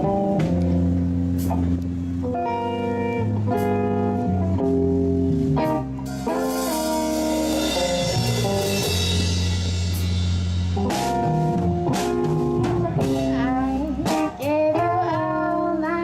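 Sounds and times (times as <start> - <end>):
live band playing instrumental: 0.0 - 16.0
drum hits: 6.0 - 13.4.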